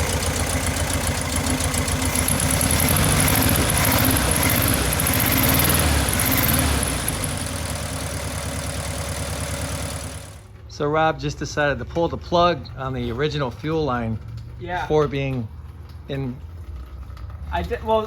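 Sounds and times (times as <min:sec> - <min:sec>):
car engine running: 0:00.0 - 0:10.5.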